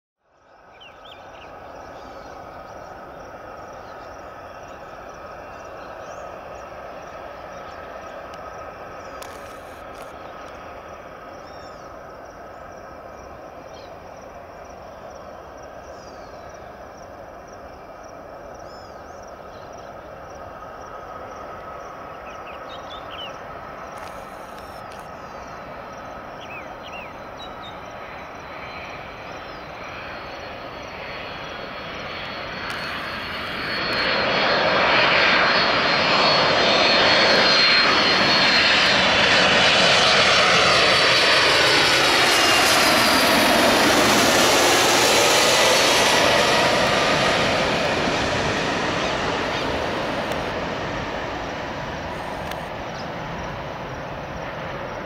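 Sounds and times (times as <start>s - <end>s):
jet engine whine: 0.2s - 55.0s
jetliner passing overhead: 0.2s - 55.0s.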